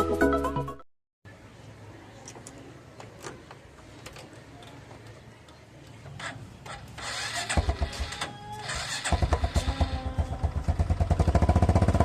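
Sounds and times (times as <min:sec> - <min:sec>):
motorcycle starter whirring: 0:06.2 - 0:12.0
motorcycle engine running: 0:07.2 - 0:12.0.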